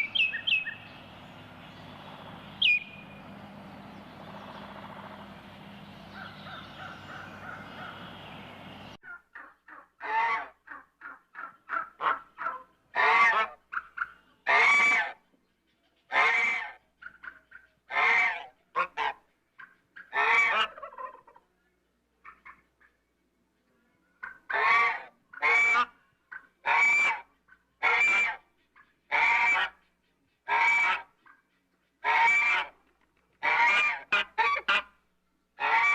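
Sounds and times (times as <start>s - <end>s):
steady background noise: 0.0s - 9.0s
large bird calling loudly: 0.0s - 15.3s, 24.2s - 32.8s, 35.6s - 35.9s.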